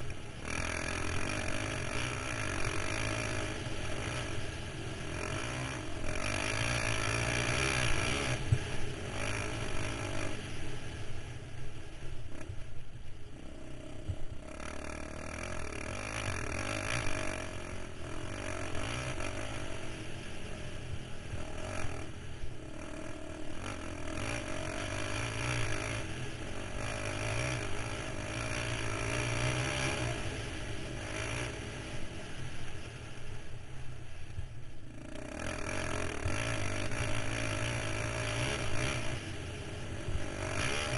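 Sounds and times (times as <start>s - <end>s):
quad bike engine revving: 0.0s - 11.2s, 12.0s - 12.6s, 13.3s - 33.2s, 34.8s - 40.9s.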